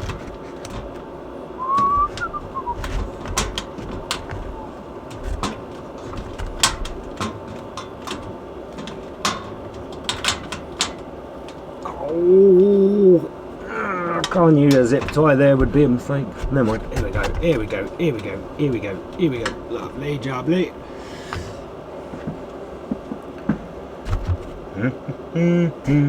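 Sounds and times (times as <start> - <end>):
steady low hum: 0.0 - 26.0
brief chirping whistle: 1.6 - 2.8.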